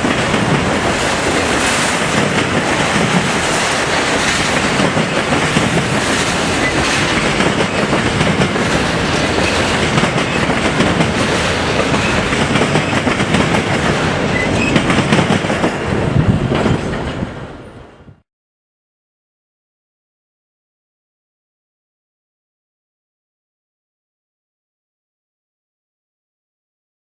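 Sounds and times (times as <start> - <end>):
train rumbling past on rails: 0.0 - 18.2.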